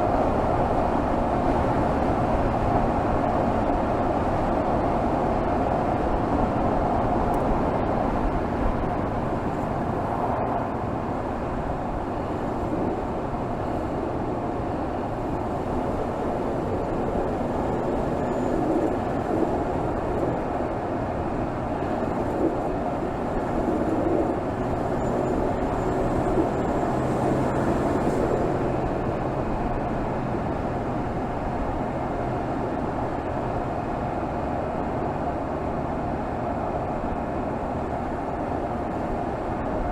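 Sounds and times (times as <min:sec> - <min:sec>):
car engine running steadily: 0:00.0 - 0:39.9
road and wind noise: 0:00.0 - 0:39.9.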